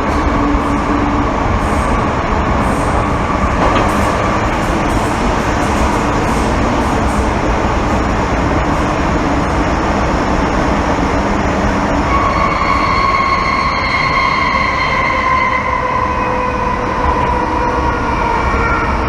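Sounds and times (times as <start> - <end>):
metro car rumble and rail noise: 0.0 - 19.0
high squeal sinking in pitch: 12.1 - 19.0.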